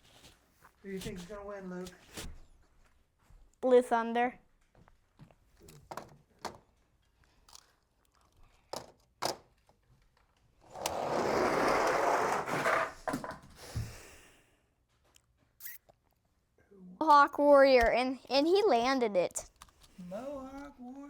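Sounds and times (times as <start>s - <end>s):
toy trucks rolling on track: 10.6s - 13.1s.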